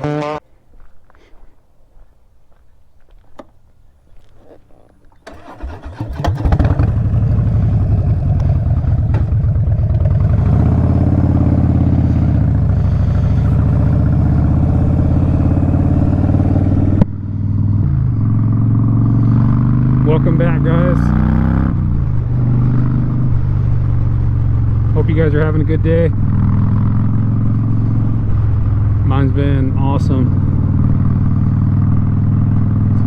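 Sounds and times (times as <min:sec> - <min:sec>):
motorcycle engine idling: 0:04.8 - 0:33.0
motorcycle starter cranking: 0:05.1 - 0:09.9.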